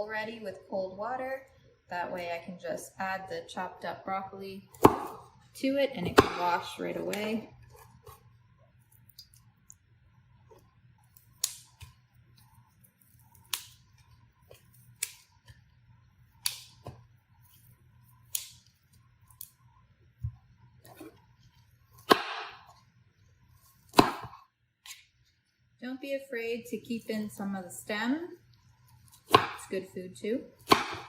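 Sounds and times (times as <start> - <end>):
knife chopping on cutting board: 4.8 - 5.3, 6.0 - 6.6, 22.0 - 22.8, 23.9 - 25.0, 29.1 - 29.7, 30.6 - 31.0.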